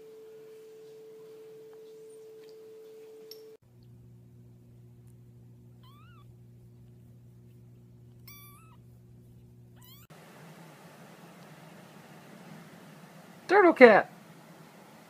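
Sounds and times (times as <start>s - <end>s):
steady low hum: 0.0s - 15.0s
cat meowing: 5.8s - 6.3s, 8.2s - 8.8s, 9.8s - 10.1s.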